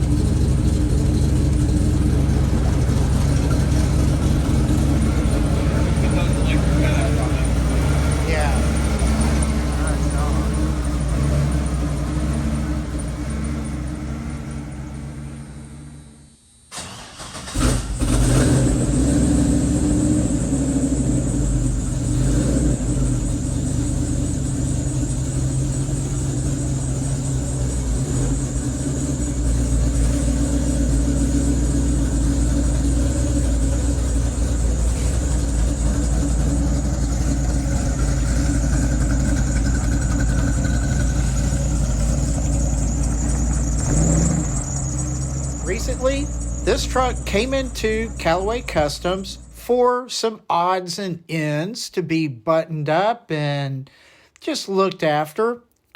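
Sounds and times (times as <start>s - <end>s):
starter cranking engine: 0.0s - 12.0s, 16.7s - 19.0s, 23.8s - 49.2s
engine idling: 0.0s - 49.8s
truck engine running: 0.0s - 49.8s.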